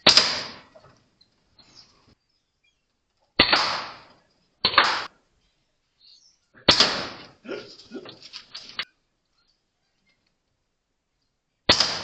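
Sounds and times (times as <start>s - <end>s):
air rifle shots: 0.0s - 0.7s, 3.4s - 5.2s, 6.7s - 7.4s, 11.7s - 12.0s.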